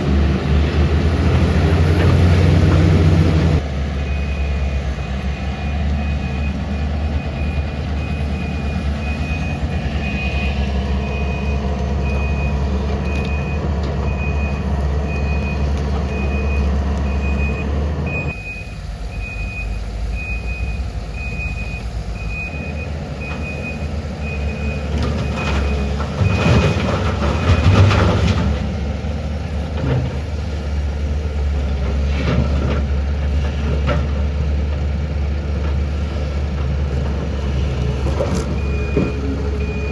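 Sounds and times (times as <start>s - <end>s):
heavy diesel machinery drone: 0.0s - 39.9s
backup alarm beeping: 5.6s - 28.0s, 38.5s - 39.9s.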